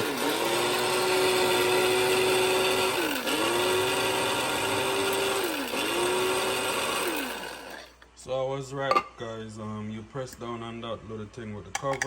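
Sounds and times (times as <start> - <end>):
blade grinder motor whining: 0.0 - 8.0.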